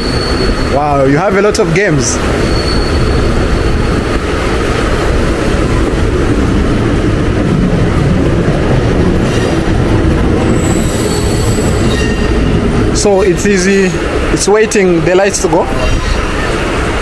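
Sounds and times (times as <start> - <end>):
faint high wheel squeal: 0.0 - 1.2, 2.2 - 4.2, 10.4 - 12.6
train wheels rumbling on rails: 0.0 - 17.0.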